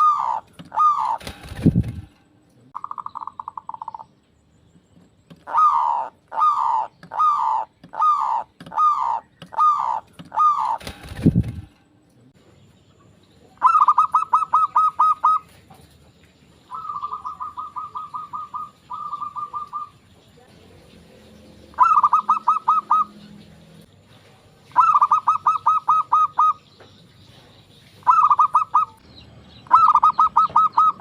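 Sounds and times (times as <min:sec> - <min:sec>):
dove cooing: 0:00.0 - 0:02.1, 0:05.4 - 0:11.7, 0:13.6 - 0:15.6, 0:16.7 - 0:20.0, 0:21.7 - 0:23.3, 0:24.7 - 0:26.6, 0:28.0 - 0:29.0, 0:29.7 - 0:31.0.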